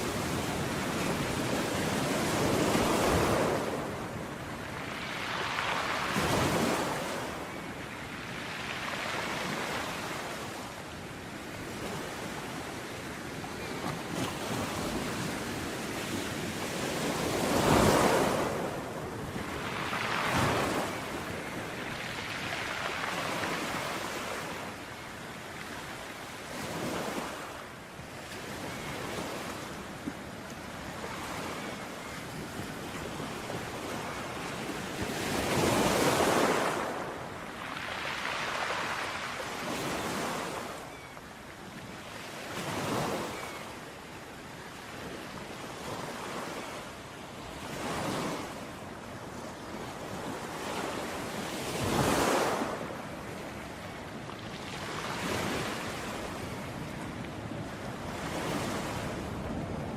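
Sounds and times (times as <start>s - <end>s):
ocean waves breaking: 0.0s - 10.7s, 11.5s - 41.1s, 49.8s - 59.9s
surf washing: 0.0s - 10.9s, 11.6s - 41.1s.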